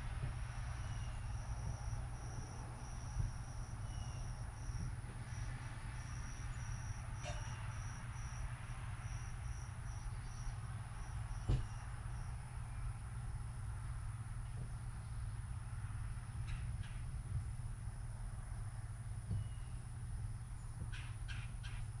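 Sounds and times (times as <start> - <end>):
steady low rumble: 0.0 - 22.0
insect chirping high trill: 0.6 - 12.4.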